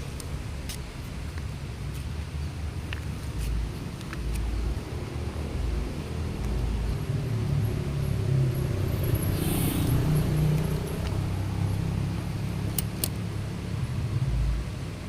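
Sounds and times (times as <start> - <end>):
low rumble of road traffic: 0.0 - 15.0
brief hiss: 9.3 - 10.2
sharp clicks: 12.7 - 13.3.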